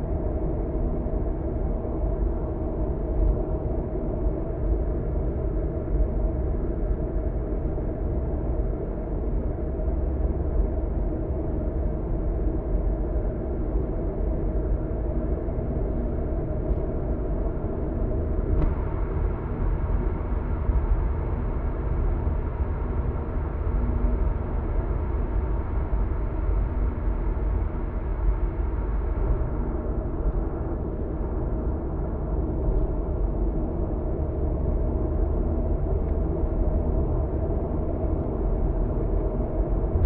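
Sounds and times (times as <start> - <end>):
car road and engine drone: 13.6 - 40.0.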